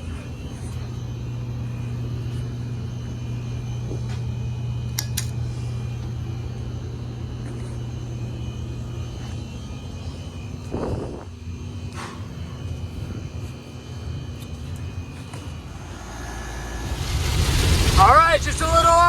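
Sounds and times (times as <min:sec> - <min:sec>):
car interior engine and road drone: 0:12.8 - 0:19.0.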